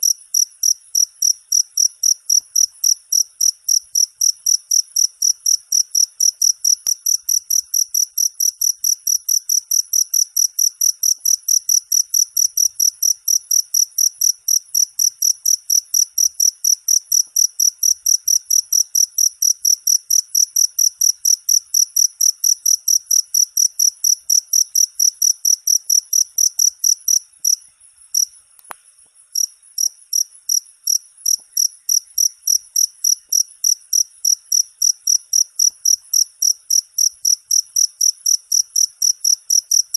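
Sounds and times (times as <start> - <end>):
cricket chirping: 0.0 - 39.9
faint click: 28.5 - 29.2.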